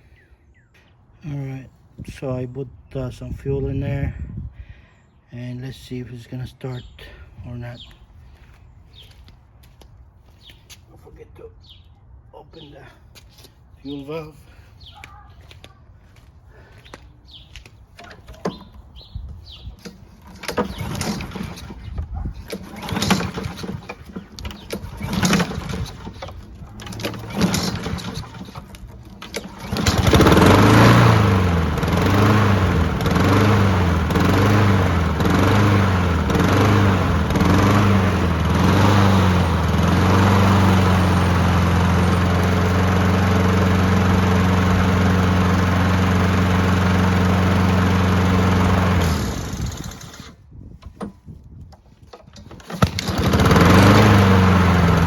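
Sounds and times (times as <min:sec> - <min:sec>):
lawn mower engine running: 0:18.0 - 0:55.0
recoil starter pulls: 0:19.5 - 0:55.0.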